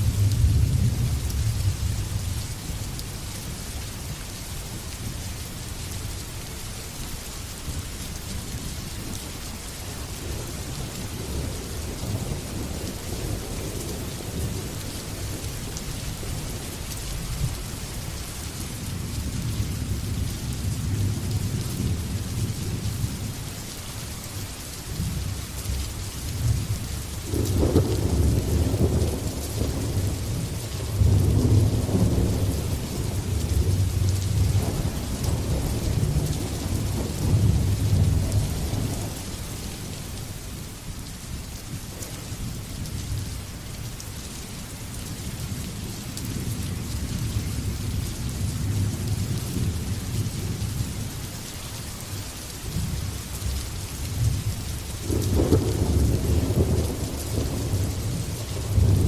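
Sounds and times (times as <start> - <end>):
rain hiss: 0.0 - 59.0
rolling thunder: 27.2 - 39.3, 54.2 - 59.0.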